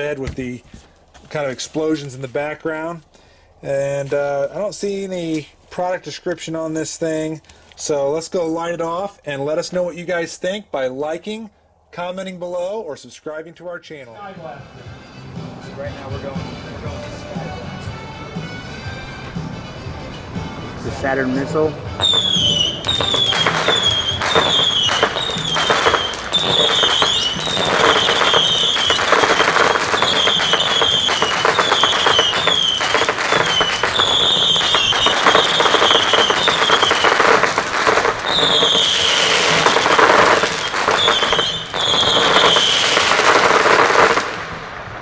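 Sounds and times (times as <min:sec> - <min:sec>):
firework pops and crackle: 0:22.0 - 0:45.0
whistling firework missiles: 0:22.0 - 0:45.0.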